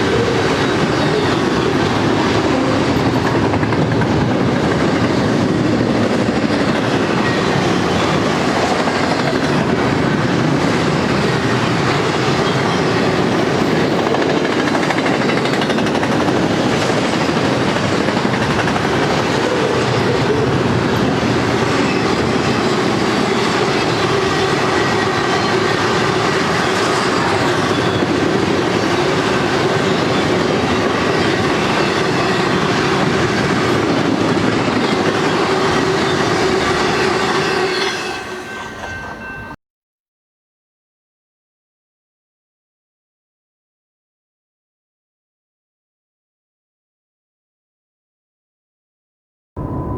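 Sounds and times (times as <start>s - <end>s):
train wheels rumbling on rail: 0.0s - 39.6s.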